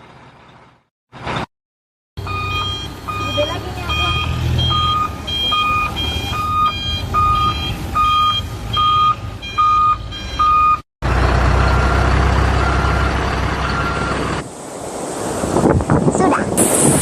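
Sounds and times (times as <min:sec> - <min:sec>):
toy truck reversing beeper: 0:02.2 - 0:10.8.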